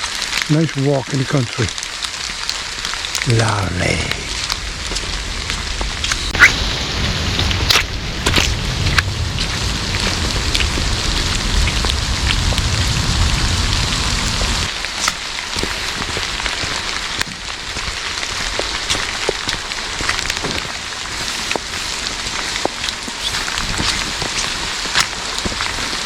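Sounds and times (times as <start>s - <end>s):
heavy rain: 0.0s - 26.0s
raindrops clicking close by: 0.0s - 26.0s
low rumble: 3.0s - 14.7s.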